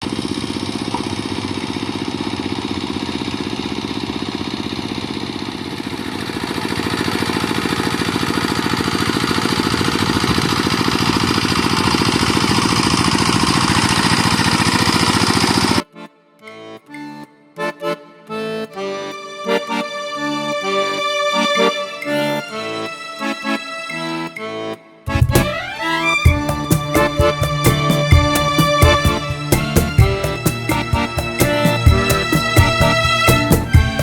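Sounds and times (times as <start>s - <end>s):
small engine running: 0.0s - 15.8s, 25.1s - 34.0s.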